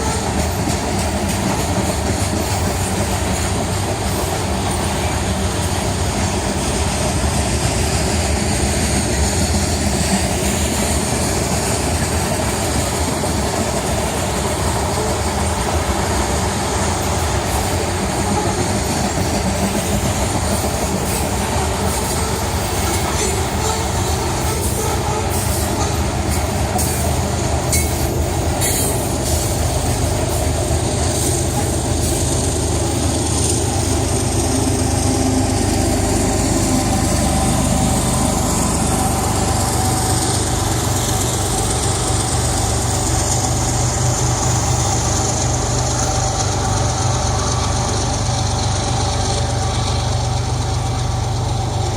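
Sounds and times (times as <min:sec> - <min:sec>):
train wheels clattering on rails: 0:00.0 - 0:51.9
high wheel squeal: 0:20.6 - 0:50.1.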